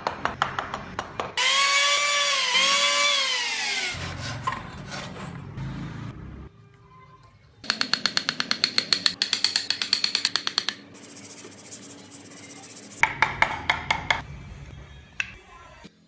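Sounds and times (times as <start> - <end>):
carving tool tapping on wood: 7.7 - 10.8.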